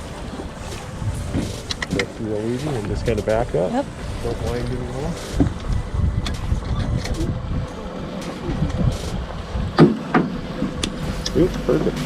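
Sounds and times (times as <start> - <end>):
wind buffeting microphone: 0.0 - 12.0
sharp knocks: 9.8 - 10.9.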